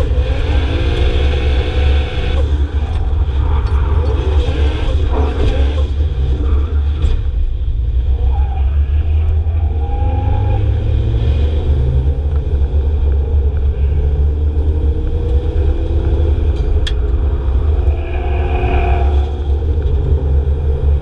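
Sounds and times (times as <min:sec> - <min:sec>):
car engines rumbling: 0:00.0 - 0:21.0.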